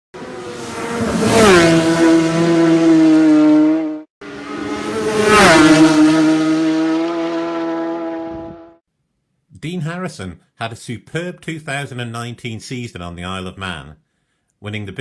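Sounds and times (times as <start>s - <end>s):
racing motorcycle passing: 0.2s - 8.8s.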